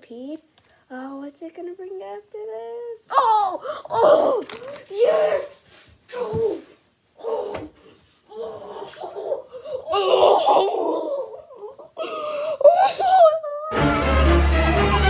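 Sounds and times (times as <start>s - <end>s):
boy laughing and squealing: 8.7s - 13.8s.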